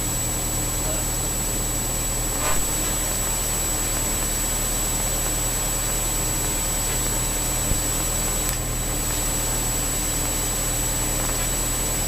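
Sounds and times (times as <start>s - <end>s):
low hum: 0.0s - 5.0s
high whine: 0.0s - 8.6s
electrical interference hiss: 0.0s - 12.0s.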